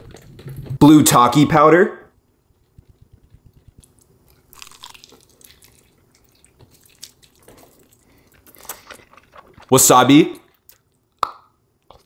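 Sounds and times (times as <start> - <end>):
wet crunching and chewing: 2.6 - 9.7, 10.4 - 11.3.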